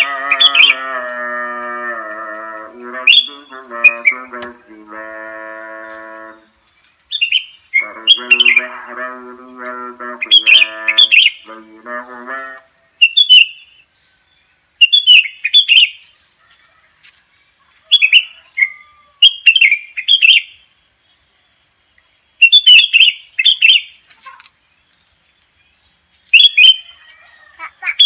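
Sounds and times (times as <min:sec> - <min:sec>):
bird singing whistled notes: 0:07.1 - 0:08.7, 0:10.2 - 0:11.4, 0:13.0 - 0:13.8, 0:14.8 - 0:16.0, 0:18.0 - 0:20.6, 0:22.4 - 0:24.0, 0:26.4 - 0:27.0.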